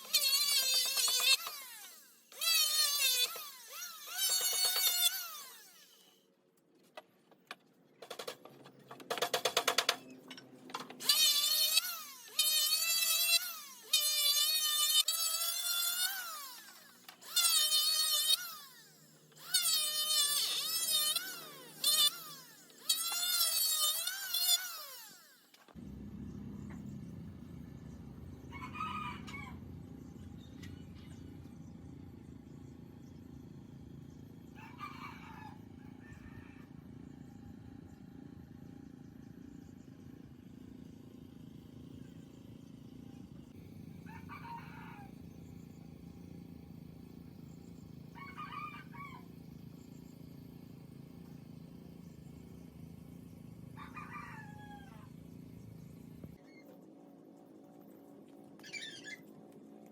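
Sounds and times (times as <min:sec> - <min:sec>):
low outdoor background: 0:00.0 - 0:59.9
rooster crowing: 0:28.4 - 0:29.7, 0:34.6 - 0:37.0, 0:44.0 - 0:45.2, 0:48.1 - 0:49.3, 0:53.8 - 0:55.2.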